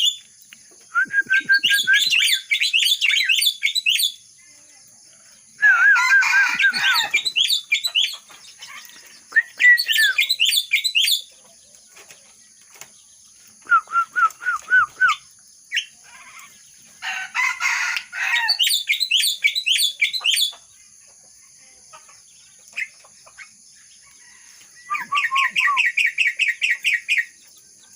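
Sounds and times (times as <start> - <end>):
myna whistled song: 0.8 - 4.2, 5.6 - 8.2, 9.2 - 11.2, 13.6 - 15.9, 24.8 - 27.3.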